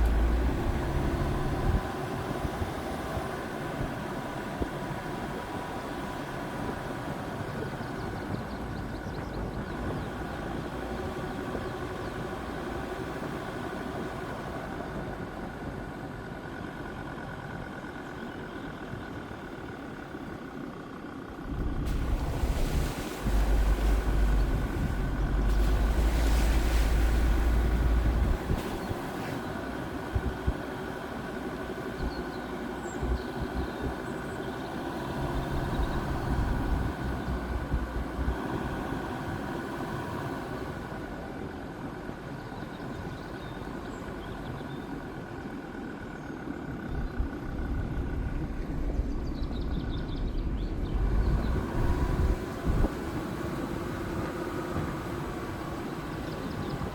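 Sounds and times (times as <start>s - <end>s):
heavy low rumble: 0.0s - 2.7s, 21.3s - 38.9s, 46.7s - 56.9s
diesel engine humming: 0.0s - 56.9s.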